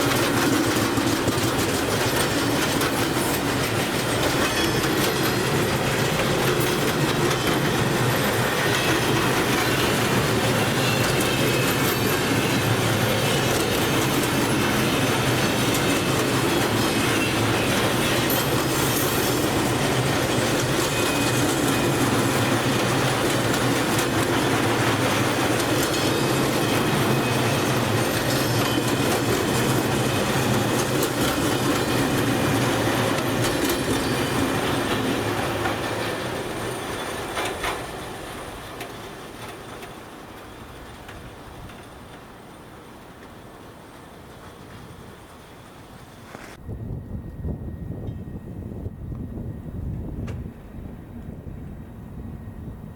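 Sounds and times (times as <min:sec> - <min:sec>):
wheels clicking over rail joints: 0:00.0 - 0:45.0
train wagons rolling on track: 0:00.0 - 0:46.6
faint high wheel squeal: 0:00.1 - 0:40.9.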